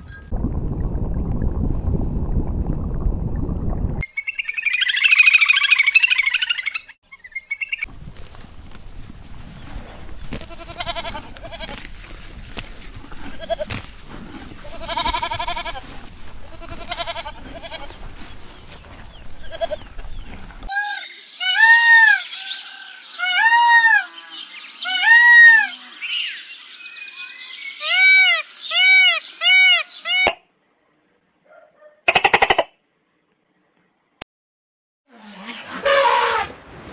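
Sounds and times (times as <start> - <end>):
peacock calling: 10.2 - 11.9, 19.2 - 26.3, 27.7 - 30.4
goats bleating: 10.3 - 11.8, 13.2 - 13.8, 14.6 - 18.0, 19.4 - 19.9.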